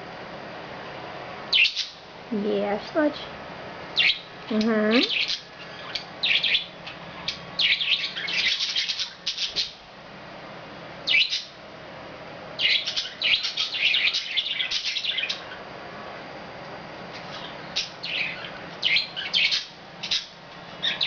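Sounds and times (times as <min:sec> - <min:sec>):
budgerigars chirping and warbling: 0:01.5 - 0:02.0, 0:04.0 - 0:04.3, 0:04.9 - 0:09.8, 0:11.1 - 0:11.6, 0:12.6 - 0:15.6, 0:17.3 - 0:21.0.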